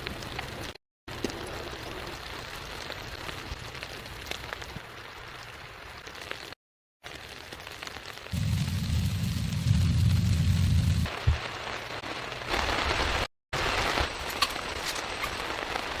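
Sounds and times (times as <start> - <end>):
faint crackles: 0.0 - 16.0
rain pattering on a surface: 0.0 - 16.0
loud low rumble: 8.4 - 11.4.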